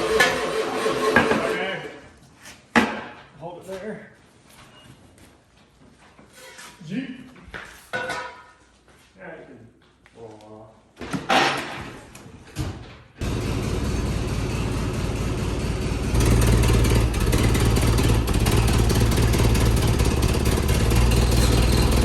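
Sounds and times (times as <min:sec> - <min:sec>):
vehicle engine revving: 0:13.2 - 0:22.0.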